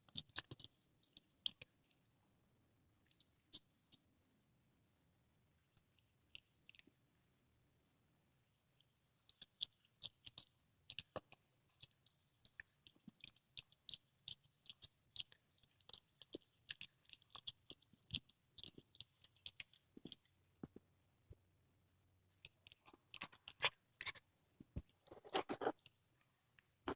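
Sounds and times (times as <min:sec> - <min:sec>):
cat chewing and crunching: 0:00.0 - 0:02.0, 0:09.2 - 0:20.9, 0:22.3 - 0:26.9.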